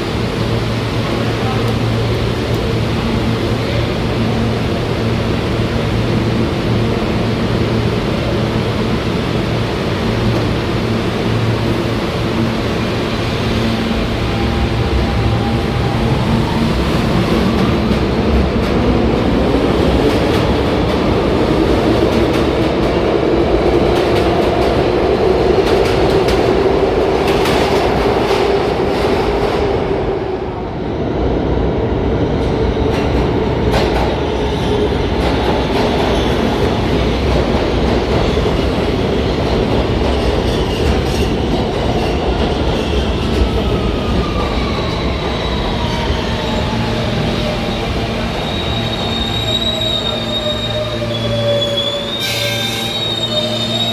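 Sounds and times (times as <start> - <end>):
subway train motors whining: 0.0 - 53.9
train wheels clattering over rails: 32.4 - 51.6.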